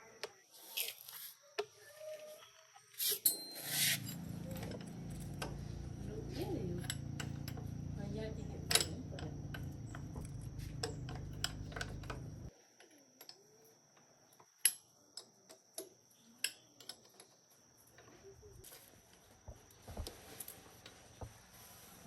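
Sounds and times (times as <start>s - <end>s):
low steady hum: 4.0s - 12.5s.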